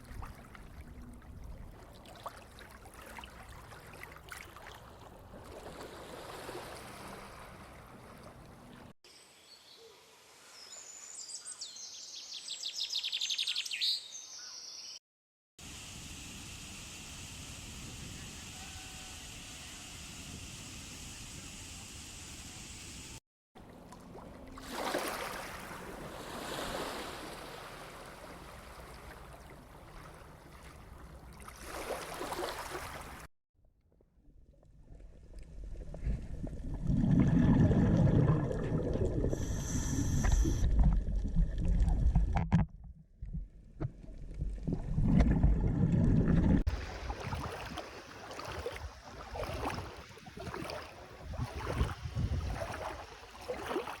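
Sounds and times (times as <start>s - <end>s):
water splashing and lapping: 0.0s - 9.0s, 23.6s - 33.3s, 34.8s - 42.6s, 43.2s - 54.0s
wind rumbling on microphone: 48.8s - 53.1s.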